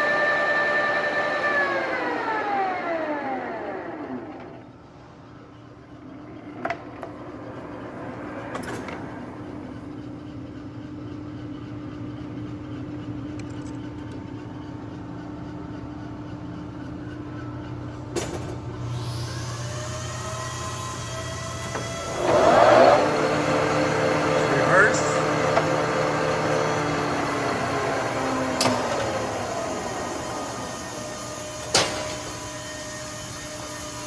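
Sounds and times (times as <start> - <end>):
lathe running: 0.0 - 4.8, 5.7 - 11.1, 14.2 - 34.0
rising whining tones: 5.8 - 10.3, 18.9 - 34.0.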